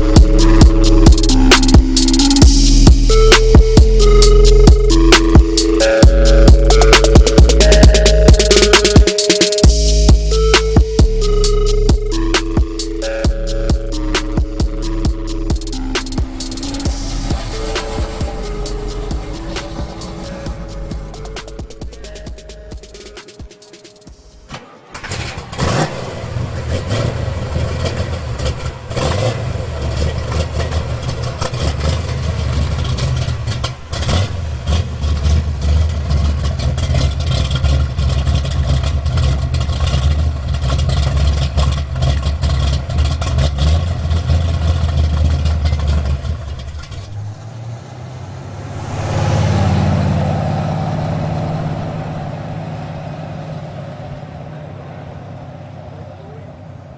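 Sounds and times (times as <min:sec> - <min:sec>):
car engine rumbling and revving: 0:00.0 - 0:09.0, 0:09.7 - 0:56.9
passing vehicle: 0:15.4 - 0:23.1, 0:24.1 - 0:56.9.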